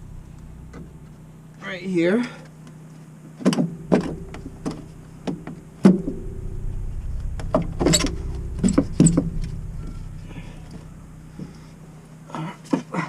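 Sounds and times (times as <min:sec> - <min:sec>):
low rumble: 0:00.0 - 0:01.6, 0:03.7 - 0:12.3.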